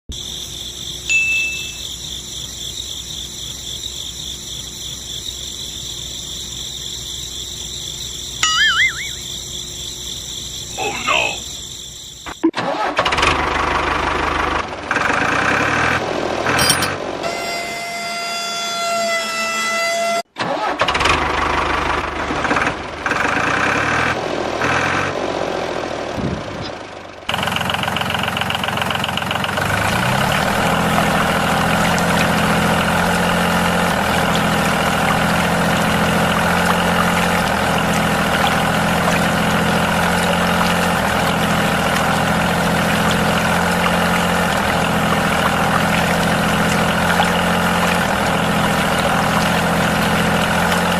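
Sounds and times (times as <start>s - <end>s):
small tractor engine starting: 12.4s - 18.4s, 20.3s - 50.9s.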